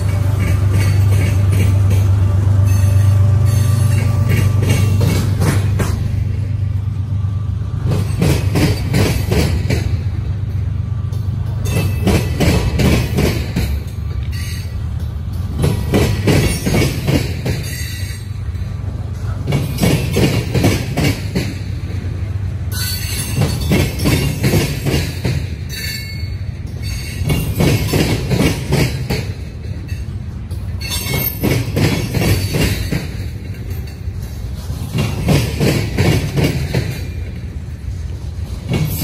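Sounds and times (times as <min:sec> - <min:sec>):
train rumble: 0:00.0 - 0:39.0
wheels clattering over rails: 0:07.8 - 0:22.1, 0:22.7 - 0:39.0.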